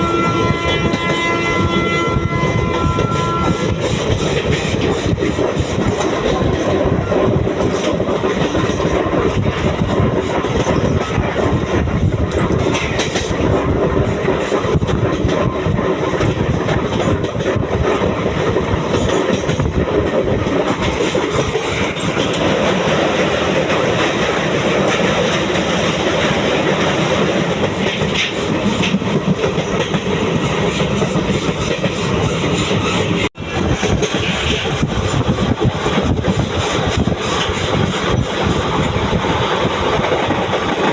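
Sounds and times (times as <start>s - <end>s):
train wheels clattering: 0.0s - 40.9s.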